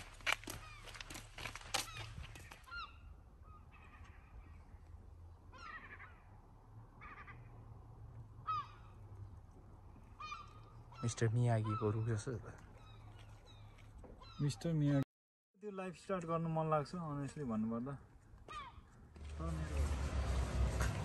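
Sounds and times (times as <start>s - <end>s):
footsteps on gravel: 0.0s - 2.7s
birds calling: 0.0s - 7.8s, 8.4s - 15.0s.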